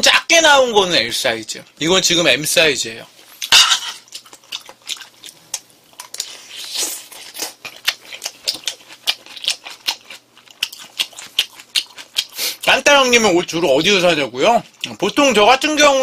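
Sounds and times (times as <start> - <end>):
chewing with wet smacks: 4.0 - 15.4.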